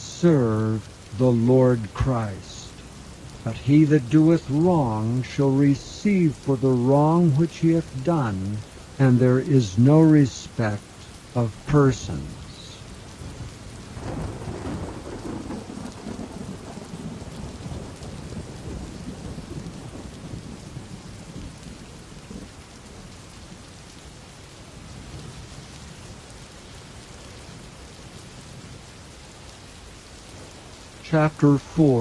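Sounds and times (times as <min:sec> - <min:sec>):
thunder rumbling: 0:00.0 - 0:23.3
steady rain falling: 0:00.0 - 0:32.0.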